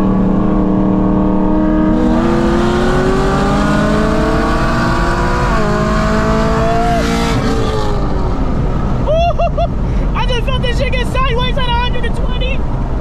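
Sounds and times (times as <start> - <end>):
car engine accelerating: 0.0 - 10.2.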